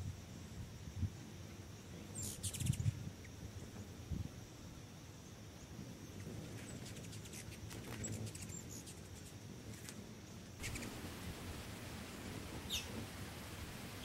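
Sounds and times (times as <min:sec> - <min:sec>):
small birds chirping: 0:01.8 - 0:04.0, 0:05.6 - 0:14.0.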